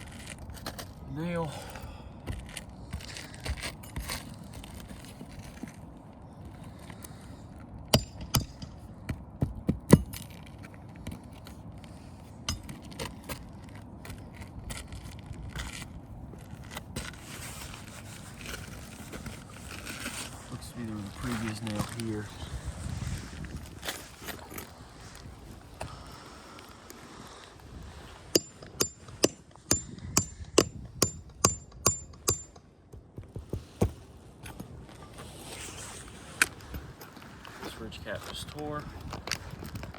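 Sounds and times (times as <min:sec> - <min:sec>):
hammer striking nail: 0:08.0 - 0:08.8, 0:28.4 - 0:33.9.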